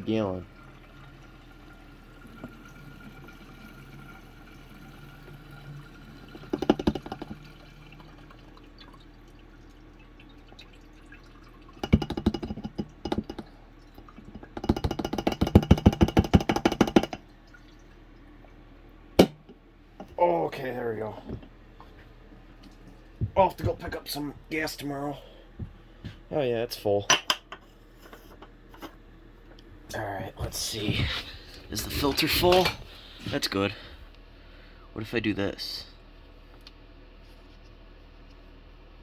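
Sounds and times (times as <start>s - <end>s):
fuel glugging into tank: 0.4s - 20.2s.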